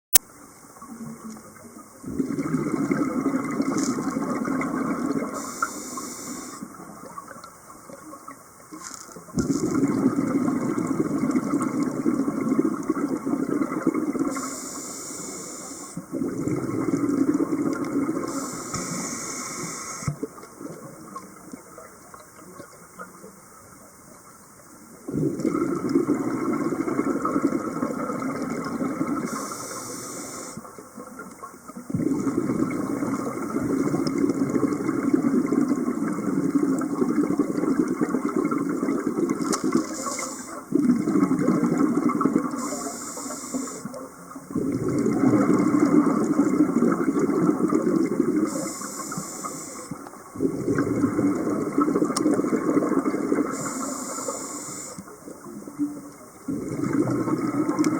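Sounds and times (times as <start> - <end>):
exhaled bubbles underwater: 0.7 - 23.4, 24.9 - 57.9
regulator hissing inhalation: 5.3 - 6.7, 14.3 - 16.0, 18.3 - 20.2, 29.2 - 30.6, 39.8 - 40.6, 42.5 - 43.9, 48.4 - 50.0, 53.5 - 55.1.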